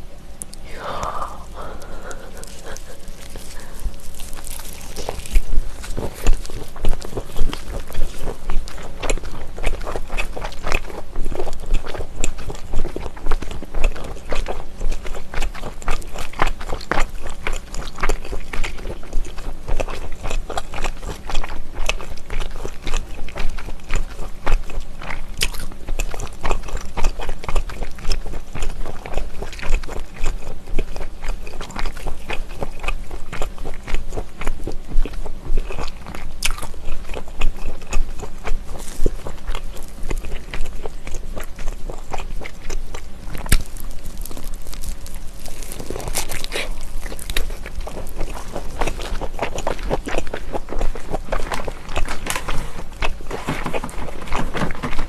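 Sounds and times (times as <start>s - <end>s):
crunching bites and chewing: 0.4s - 55.0s.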